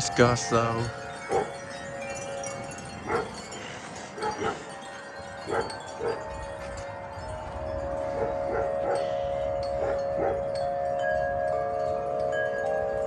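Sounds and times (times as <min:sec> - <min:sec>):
wind chimes ringing: 0:00.0 - 0:13.0.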